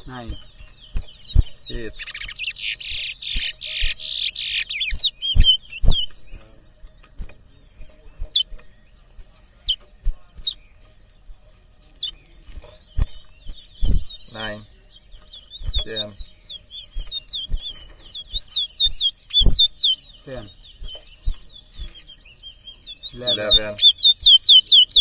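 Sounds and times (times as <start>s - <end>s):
finch warbling song: 0.0s - 6.8s, 11.9s - 25.0s
single bird chirps: 0.0s - 8.8s, 12.0s - 25.0s.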